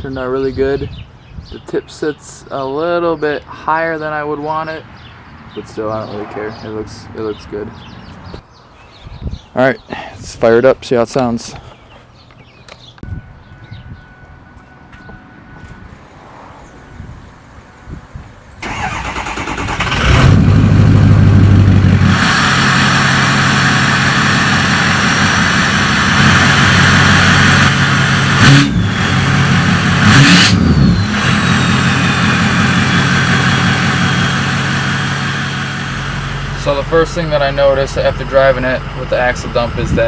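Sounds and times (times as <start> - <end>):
engine revving blips: 18.6 - 39.8
diesel engine cranking and starting: 18.6 - 40.0
diesel engine idling: 18.6 - 40.0.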